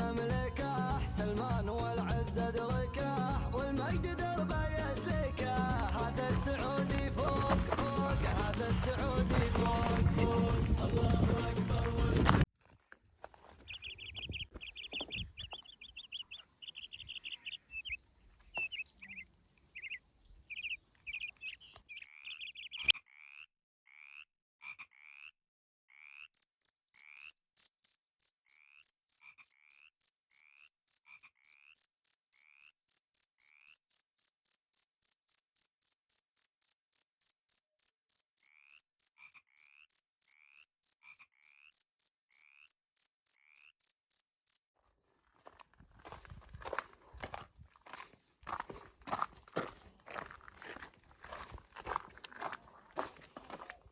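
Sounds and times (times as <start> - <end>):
high insect chirping: 13.2 - 22.9, 26.0 - 44.7
frogs croaking: 13.2 - 44.7, 45.3 - 53.8.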